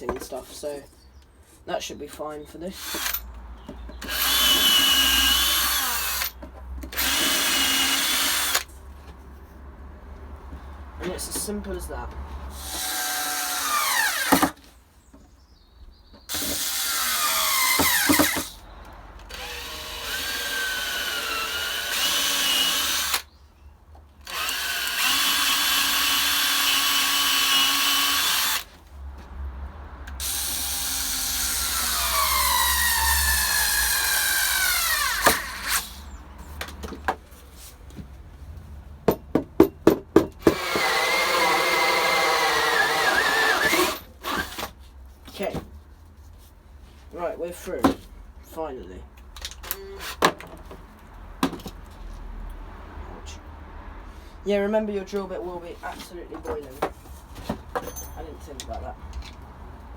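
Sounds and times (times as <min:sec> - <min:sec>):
drill cutting through wood: 0:02.7 - 0:03.2, 0:04.0 - 0:08.7, 0:12.5 - 0:14.6, 0:16.3 - 0:18.6, 0:19.3 - 0:23.3, 0:24.2 - 0:28.7, 0:30.2 - 0:36.1, 0:40.4 - 0:44.6.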